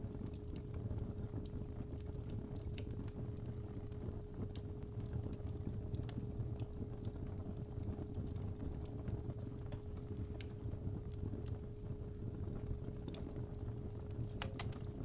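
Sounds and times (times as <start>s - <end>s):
fireplace fire crackling: 0.0s - 15.0s
sharp pops of fire: 14.2s - 15.0s.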